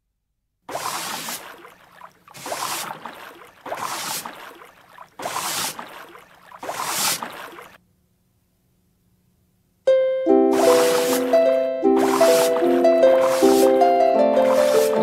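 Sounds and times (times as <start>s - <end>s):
rhythmic whooshing: 10.5s - 15.0s.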